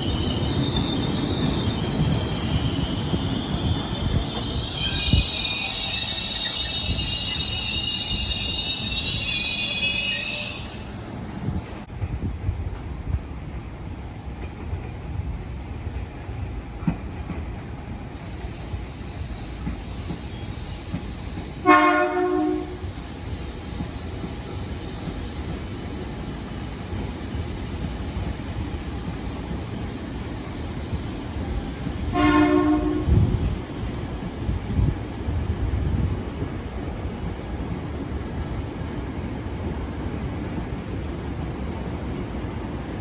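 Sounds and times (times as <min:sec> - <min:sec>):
electric train rolling rumble: 0:00.0 - 0:43.0
train horn blasts: 0:21.6 - 0:22.8, 0:32.1 - 0:33.3.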